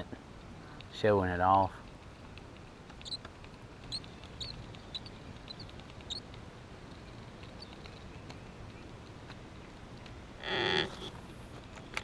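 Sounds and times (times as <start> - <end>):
faint background hiss: 0.0 - 12.0
bird chirping: 2.9 - 6.3, 6.9 - 9.0.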